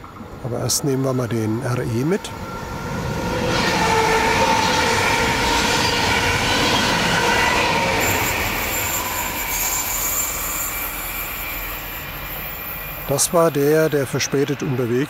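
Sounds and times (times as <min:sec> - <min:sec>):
train wheels squealing on rails: 0:02.1 - 0:15.0.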